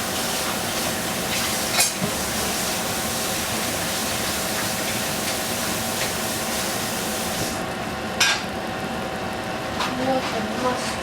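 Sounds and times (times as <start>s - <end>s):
food sizzling in hot oil: 0.0s - 7.6s.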